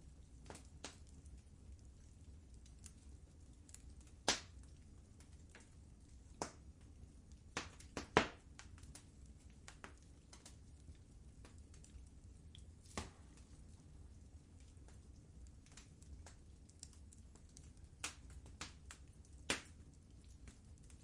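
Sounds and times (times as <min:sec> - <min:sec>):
fireplace fire crackling: 0:00.0 - 0:21.0
sharp fire pops: 0:00.4 - 0:01.0, 0:04.2 - 0:04.6, 0:07.5 - 0:09.0, 0:12.8 - 0:13.4, 0:18.0 - 0:19.8.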